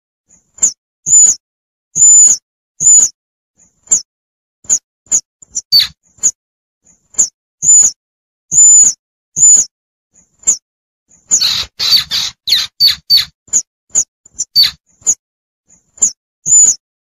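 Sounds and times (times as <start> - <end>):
high-pitched squirrel chirps: 0.6 - 1.4, 2.0 - 3.2, 4.7 - 6.4, 7.2 - 9.7, 11.3 - 15.2, 16.0 - 16.8.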